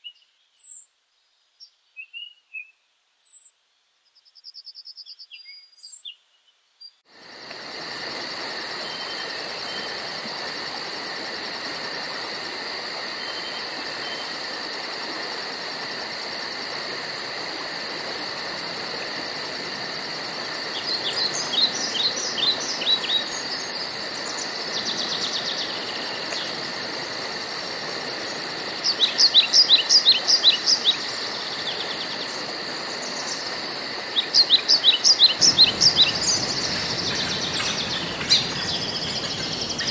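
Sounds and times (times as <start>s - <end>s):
insects pulsing chorus: 7.1s - 39.9s
birds singing falling notes: 35.0s - 39.9s.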